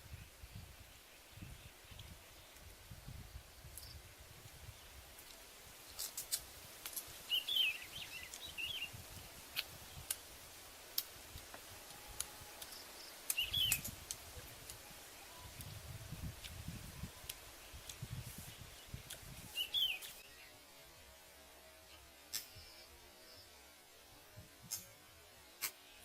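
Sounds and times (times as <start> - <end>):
birds chirping: 7.2 - 9.0, 12.5 - 14.0, 17.5 - 20.6
sharp clicks and snaps: 11.0 - 14.8.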